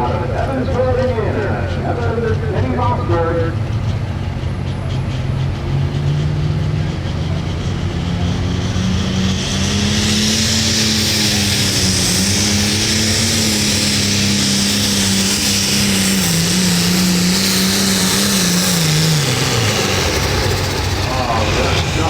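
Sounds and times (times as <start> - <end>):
tractor diesel engine at high revs: 0.0 - 22.0
high hiss: 8.5 - 22.0.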